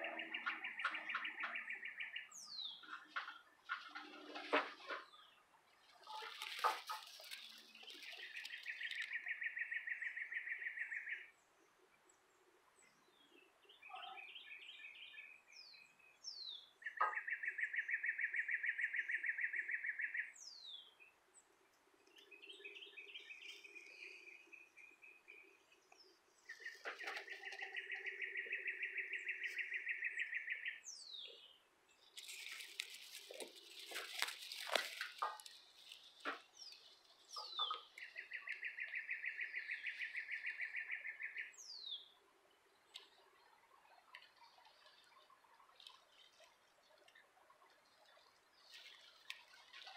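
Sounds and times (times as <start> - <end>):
hay rustling: 32.2 - 36.2.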